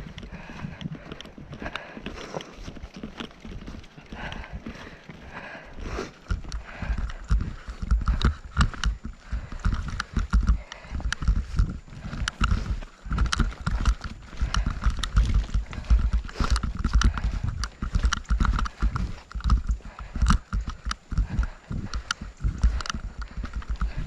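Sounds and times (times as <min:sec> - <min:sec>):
strong wind buffeting microphone: 0:00.0 - 0:02.0, 0:04.0 - 0:24.0
sharp clicks and taps: 0:06.2 - 0:24.0.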